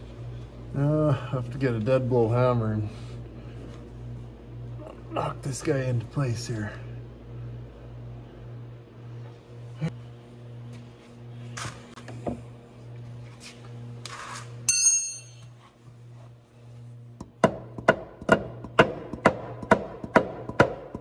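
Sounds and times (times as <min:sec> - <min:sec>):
metallic clink: 0:14.7 - 0:15.5.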